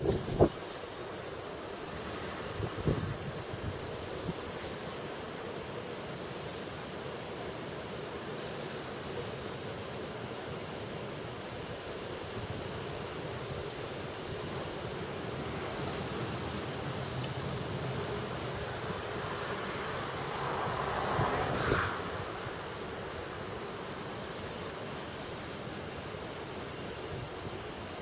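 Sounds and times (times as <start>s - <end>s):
strong wind rushing: 0.0s - 0.6s, 20.1s - 22.6s.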